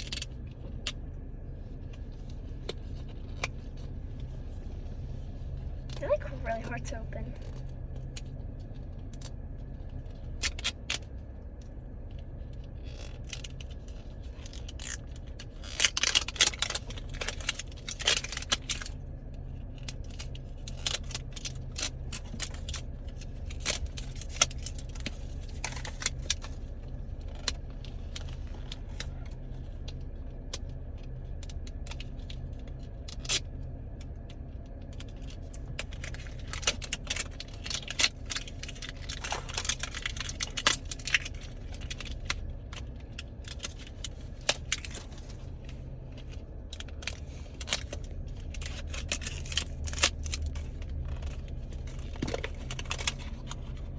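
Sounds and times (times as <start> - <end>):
steady low hum: 0.0 - 53.9
plastic clicking and crinkling: 7.4 - 53.9.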